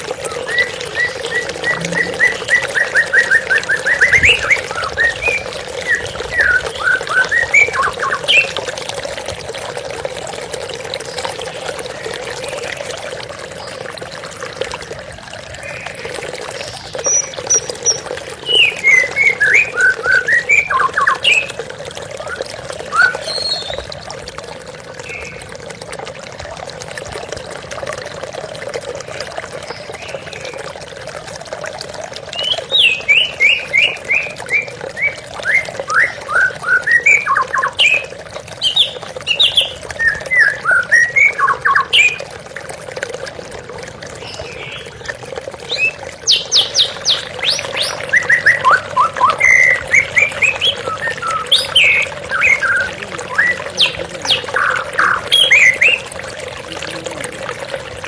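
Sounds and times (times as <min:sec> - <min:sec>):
flowing water: 0:00.0 - 0:58.0
bird singing: 0:16.9 - 0:21.6, 0:32.4 - 0:38.0, 0:45.7 - 0:56.0.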